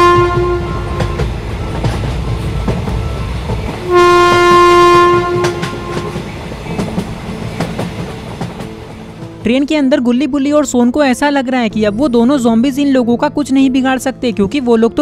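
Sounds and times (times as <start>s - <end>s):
train horn blast: 0.0s - 1.4s, 3.8s - 7.0s
train wheels clacking on rails: 0.0s - 9.5s.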